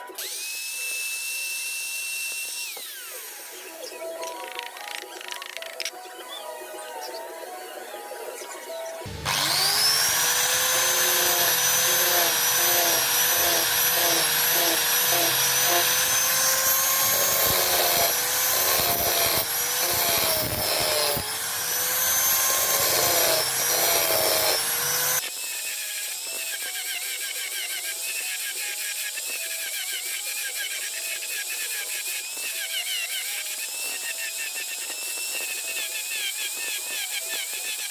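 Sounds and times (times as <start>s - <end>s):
power tool motor whining: 0.0s - 5.9s, 9.0s - 37.9s
light background music: 3.2s - 9.2s.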